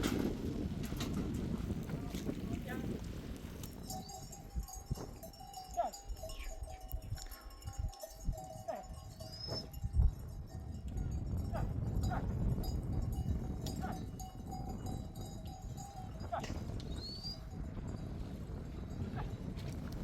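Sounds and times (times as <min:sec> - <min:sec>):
livestock bells clinking: 0:02.8 - 0:19.8.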